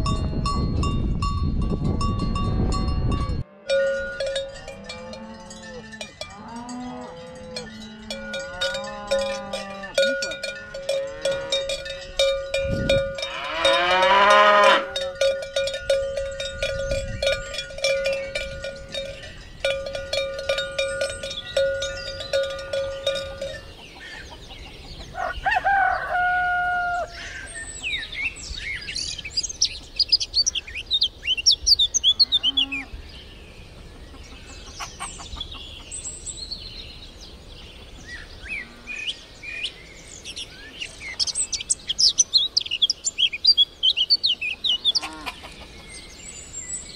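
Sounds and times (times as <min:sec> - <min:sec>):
cow bell clanging: 0:00.0 - 0:24.3
cow mooing: 0:04.6 - 0:12.0, 0:13.1 - 0:15.2
small birds chirping: 0:14.9 - 0:26.1, 0:26.9 - 0:46.9.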